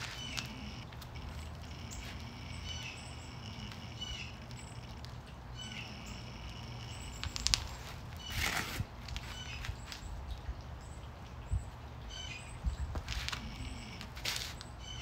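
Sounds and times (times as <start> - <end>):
sharp clicks: 0.0 - 7.8
small birds chirping: 0.0 - 15.0
steady low hum: 0.0 - 15.0.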